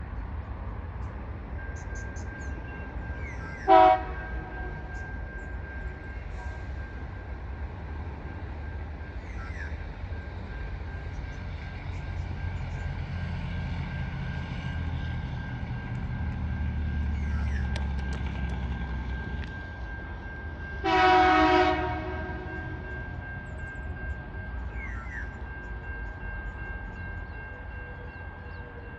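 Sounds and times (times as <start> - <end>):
train rumbling past: 0.0 - 28.9
locomotive horn: 3.6 - 5.0, 20.8 - 23.0.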